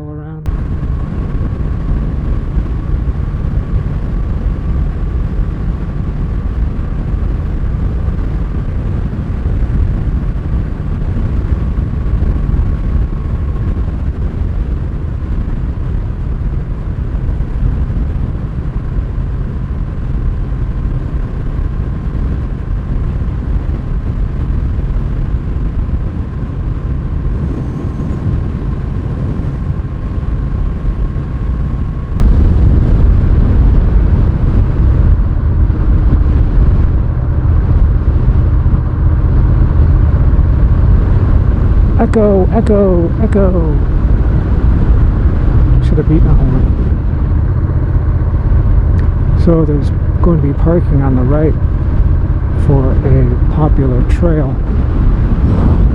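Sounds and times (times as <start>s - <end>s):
motorcycle engine cruising: 0.0s - 55.9s
wind on microphone: 0.0s - 55.9s.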